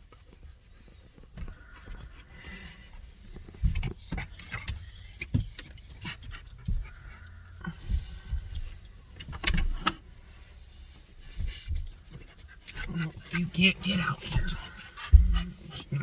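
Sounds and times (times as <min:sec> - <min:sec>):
metal jingling and clinking: 0:02.8 - 0:10.7, 0:11.3 - 0:15.0
knocks and low bumps: 0:14.2 - 0:15.7.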